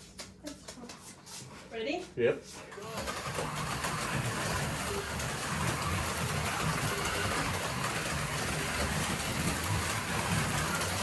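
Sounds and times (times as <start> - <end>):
slot car motors whirring: 2.7 - 11.0.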